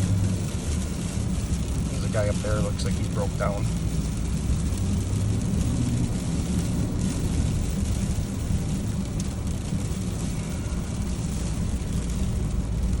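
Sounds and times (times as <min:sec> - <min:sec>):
pickup truck engine and tyre rumble: 0:00.0 - 0:13.0.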